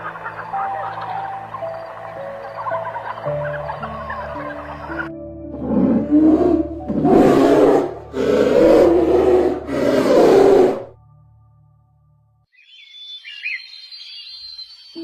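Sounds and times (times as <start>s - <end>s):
large animal roaring: 5.5s - 11.0s.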